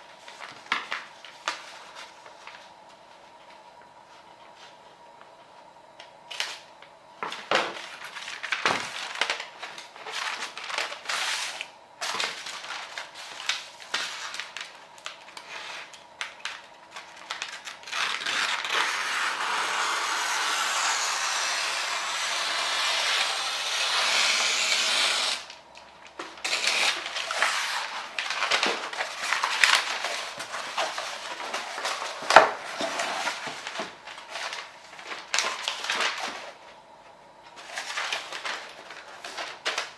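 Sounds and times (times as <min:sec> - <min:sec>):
paper rustling and crinkling: 0:00.0 - 0:04.8, 0:06.3 - 0:18.9, 0:25.8 - 0:39.9
scissors cutting paper: 0:17.4 - 0:25.5, 0:26.4 - 0:33.5.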